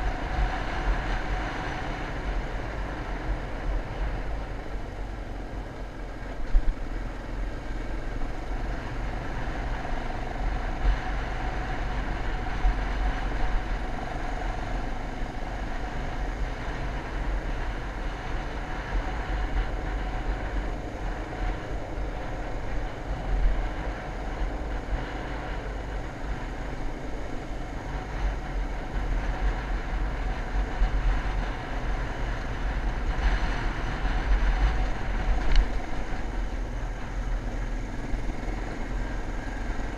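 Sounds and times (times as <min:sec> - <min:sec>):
motocross bike engine: 0:00.0 - 0:39.9
wind buffeting microphone: 0:08.2 - 0:39.9.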